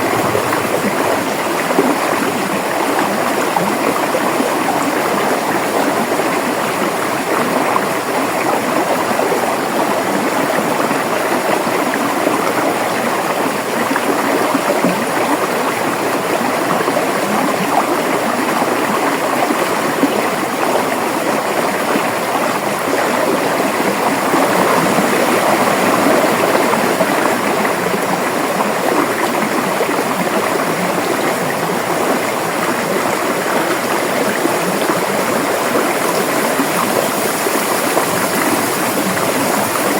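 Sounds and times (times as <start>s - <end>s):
river water over rocks: 0.0s - 39.9s.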